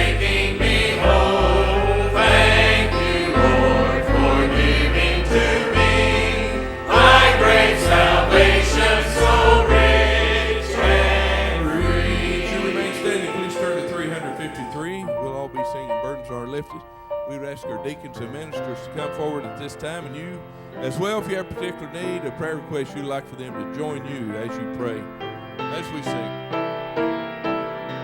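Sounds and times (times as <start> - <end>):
instrumental accompaniment with bass: 0.0 - 12.8
choir singing a hymn: 0.0 - 16.2.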